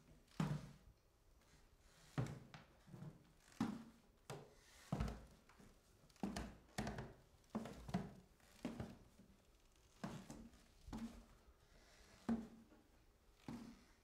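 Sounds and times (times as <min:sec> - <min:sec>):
footsteps down a staircase: 0:02.1 - 0:09.3, 0:10.0 - 0:13.9.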